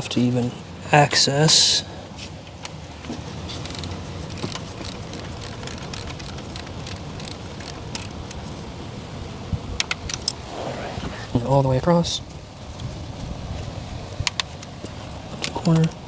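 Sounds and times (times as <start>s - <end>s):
socket wrench metallic clicks: 3.6s - 8.4s, 9.8s - 10.4s.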